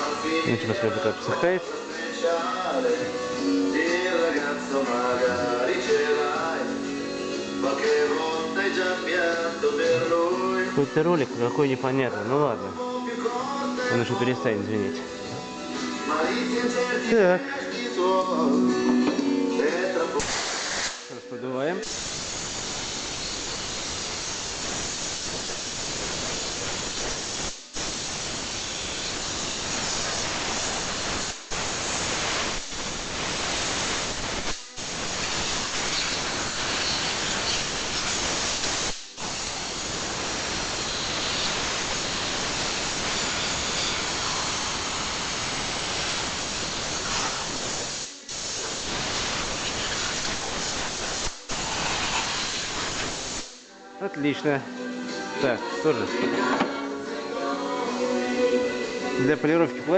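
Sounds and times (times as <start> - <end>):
compressed air blow gun hissing: 20.2 - 21.1, 21.8 - 53.7.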